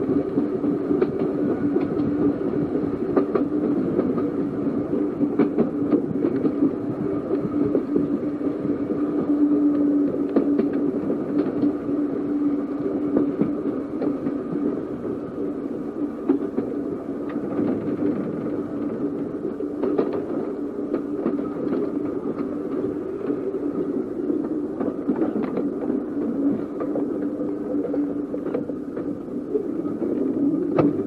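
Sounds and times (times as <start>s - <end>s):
electric tram running on track: 0.0s - 31.0s.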